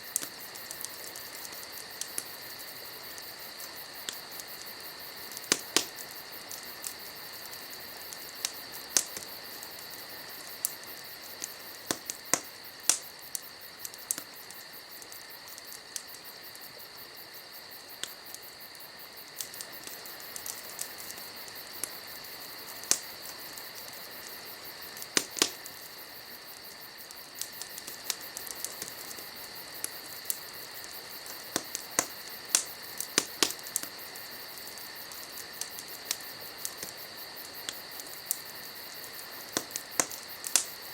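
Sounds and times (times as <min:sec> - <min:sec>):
crickets chirring: 0:00.0 - 0:40.9
wood fire crackling and popping: 0:00.0 - 0:40.9.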